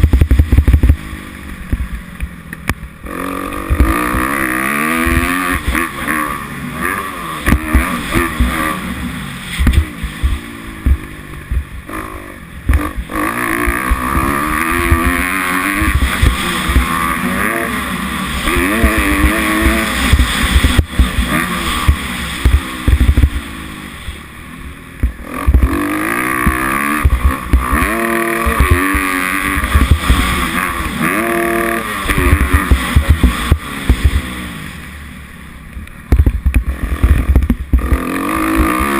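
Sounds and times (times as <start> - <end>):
motocross engine revving: 0.0 - 1.8, 2.8 - 35.2, 36.1 - 38.9
thumps from bumps and landings: 3.5 - 5.9, 7.4 - 8.7, 9.5 - 11.8, 12.6 - 17.6, 18.4 - 23.5, 25.0 - 34.3, 36.1 - 38.9.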